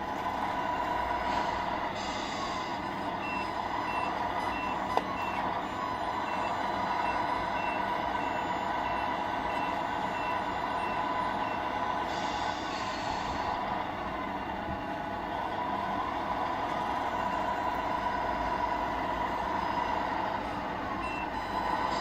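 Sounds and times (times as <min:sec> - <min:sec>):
simulated diesel engine noise: 0:00.0 - 0:22.0
reversing beeper: 0:02.0 - 0:13.1.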